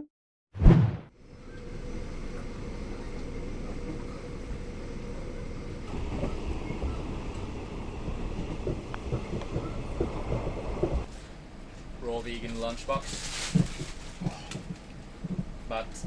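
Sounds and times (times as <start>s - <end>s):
faint steady hum: 1.1s - 16.0s
train rumbling: 1.1s - 16.0s
low knocks: 6.2s - 11.1s.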